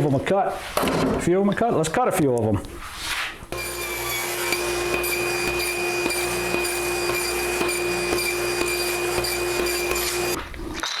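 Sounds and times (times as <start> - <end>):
table saw running: 3.5 - 10.4.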